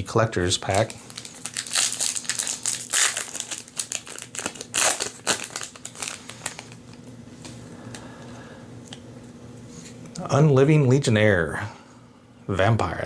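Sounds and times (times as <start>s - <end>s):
plastic wrapper crinkling: 0.4s - 7.0s.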